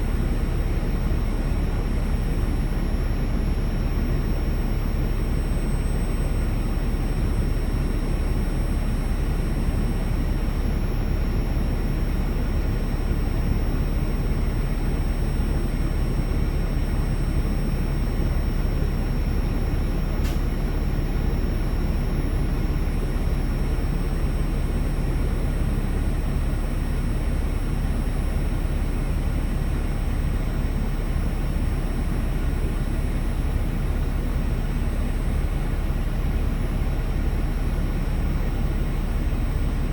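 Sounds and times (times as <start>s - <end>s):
click: 20.2s - 20.4s.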